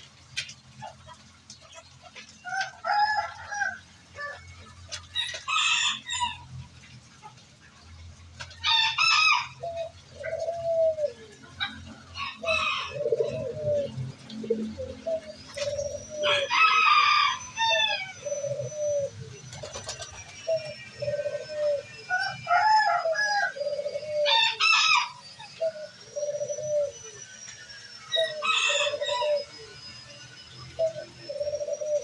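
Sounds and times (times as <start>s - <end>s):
bird calls: 0.0s - 32.0s
pigeons cooing: 0.0s - 32.0s
rooster crowing: 2.5s - 4.5s, 5.2s - 6.5s, 8.6s - 9.8s, 11.8s - 13.9s, 15.8s - 18.6s, 20.5s - 25.7s, 28.1s - 29.6s.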